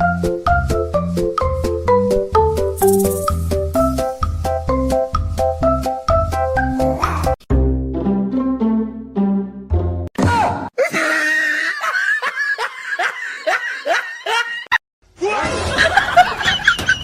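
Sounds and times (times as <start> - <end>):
light music: 0.0 - 10.0
person shrieking: 6.9 - 7.4, 10.3 - 12.1
person laughing hard: 10.8 - 17.0.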